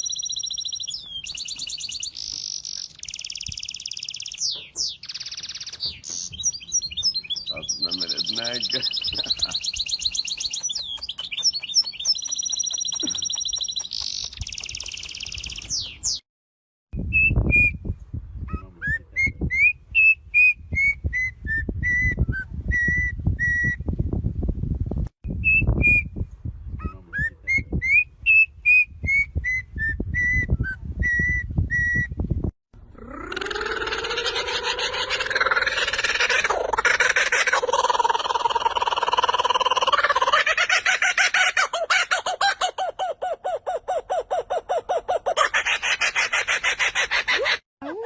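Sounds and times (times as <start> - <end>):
bird whistling a tune: 0.0 - 8.4, 9.0 - 16.2, 17.0 - 17.8, 19.2 - 23.8, 25.4 - 26.2, 27.5 - 32.2
high trilling bird chatter: 0.0 - 16.2, 33.0 - 42.8.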